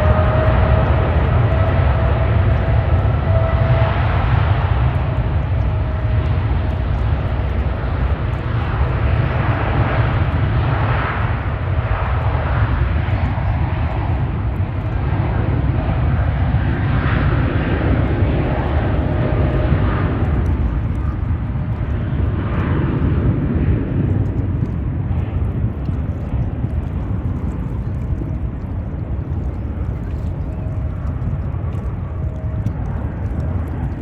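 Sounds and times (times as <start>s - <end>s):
jet engines running: 0.0s - 34.0s.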